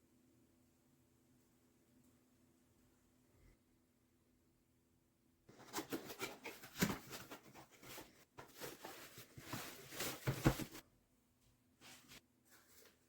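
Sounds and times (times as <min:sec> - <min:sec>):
handling rustling and clicking: 0:05.5 - 0:10.8.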